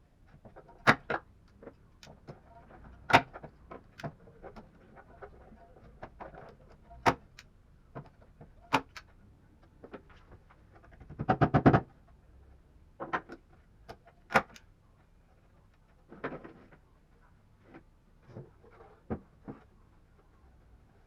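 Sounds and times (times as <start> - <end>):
hard objects knocking and clicking: 0.3 - 9.0.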